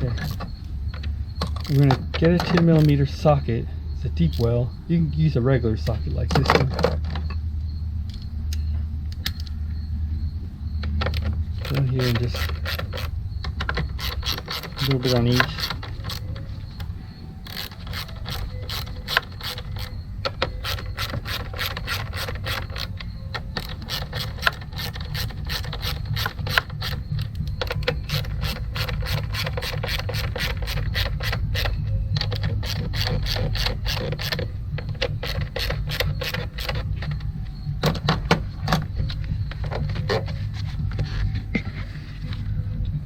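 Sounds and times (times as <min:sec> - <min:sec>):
hand ratchet clicking: 0:00.0 - 0:03.3, 0:04.2 - 0:04.6, 0:10.8 - 0:40.2
low rumble: 0:36.8 - 0:43.0.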